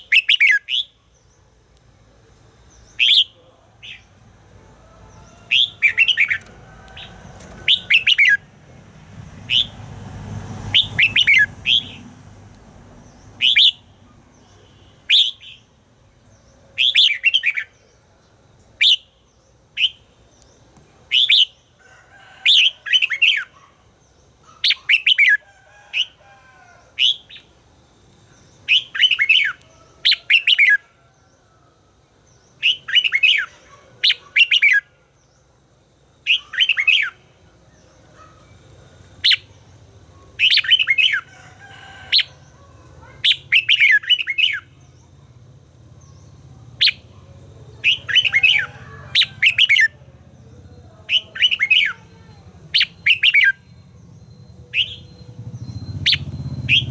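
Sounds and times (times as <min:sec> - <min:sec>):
bird singing short phrases: 0:02.7 - 0:04.2.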